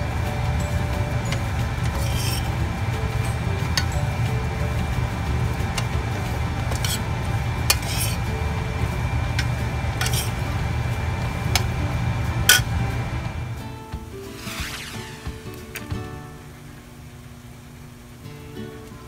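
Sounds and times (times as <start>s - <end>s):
low hum: 0.0s - 18.3s
spoon stirring dry rice in skillet: 1.4s - 4.0s, 5.6s - 8.4s, 9.0s - 10.5s.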